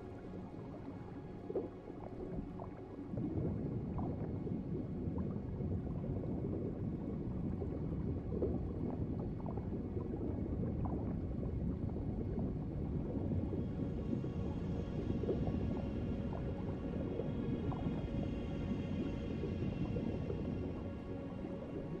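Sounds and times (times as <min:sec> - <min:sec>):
underwater gurgling: 0:00.0 - 0:22.0.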